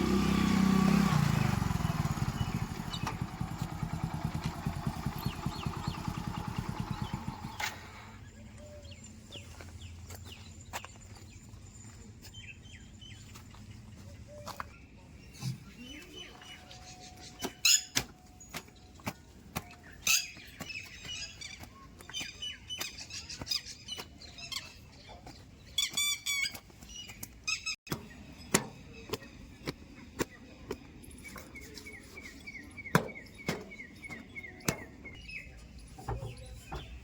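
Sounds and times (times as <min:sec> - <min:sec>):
birds chirping and calling: 0:00.1 - 0:37.0.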